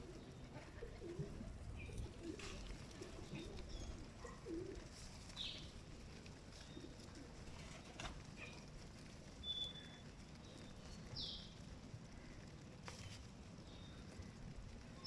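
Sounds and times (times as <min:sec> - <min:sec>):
pigeons cooing: 0:00.0 - 0:09.8.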